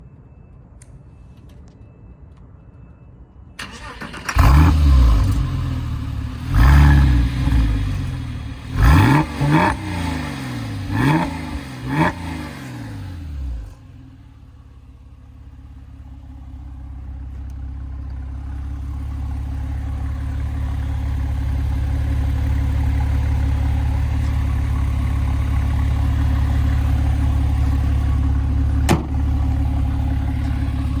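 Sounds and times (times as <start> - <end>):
click: 0.8 - 2.5
car engine revving and droning: 4.3 - 14.3.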